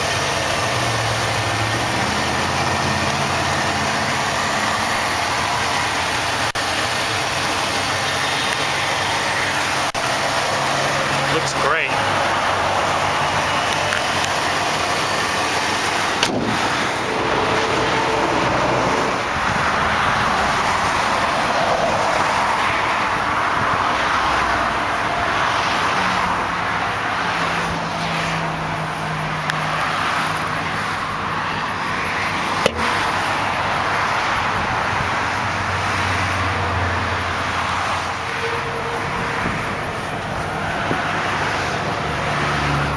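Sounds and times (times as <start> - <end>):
car engine idling: 0.0 - 42.9
passing highway traffic: 0.0 - 42.9.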